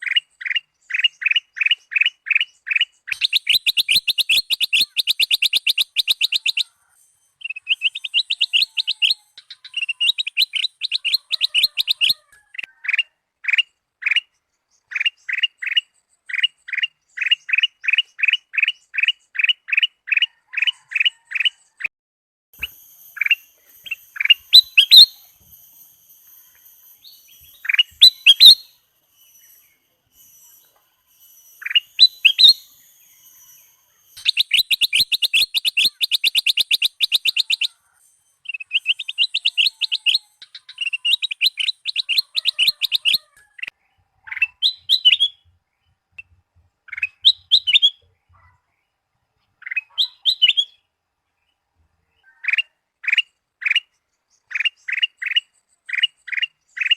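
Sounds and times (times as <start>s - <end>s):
bulbul singing: 0.0s - 20.4s, 22.6s - 48.4s, 49.5s - 50.9s
faint thin high tones: 22.6s - 36.0s.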